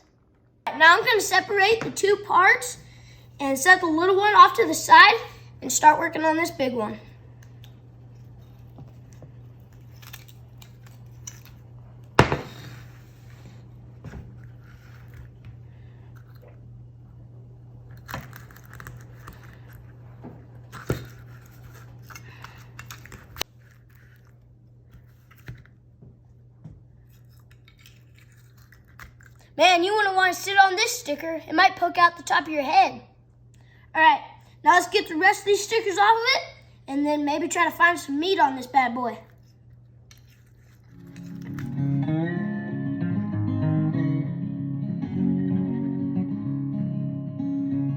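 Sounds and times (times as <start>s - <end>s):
small clicks and tearing: 7.4s - 11.7s, 17.9s - 20.0s, 20.7s - 25.8s, 27.1s - 29.5s, 39.3s - 41.8s.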